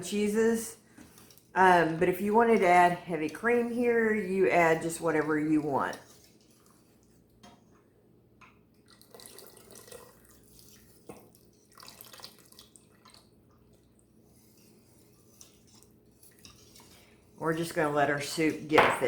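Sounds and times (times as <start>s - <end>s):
milk pouring and splashing: 5.1s - 7.4s, 8.7s - 17.8s.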